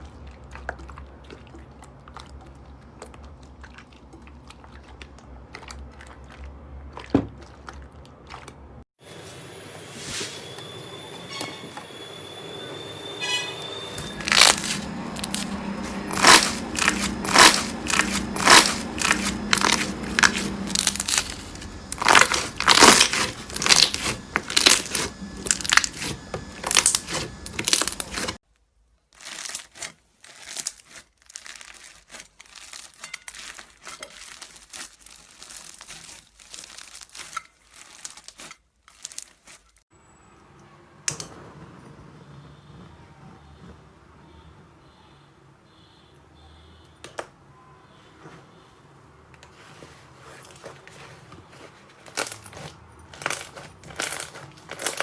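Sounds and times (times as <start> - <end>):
slime crackling and popping: 14.1 - 28.4, 29.1 - 39.6.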